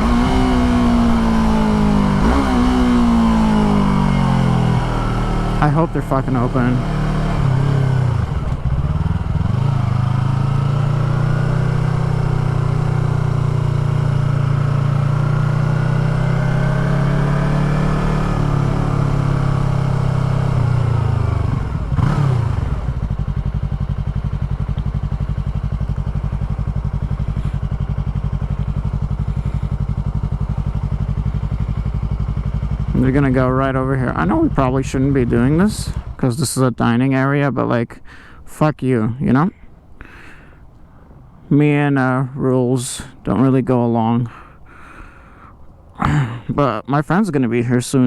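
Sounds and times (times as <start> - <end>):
motorcycle engine running: 0.0 - 36.5.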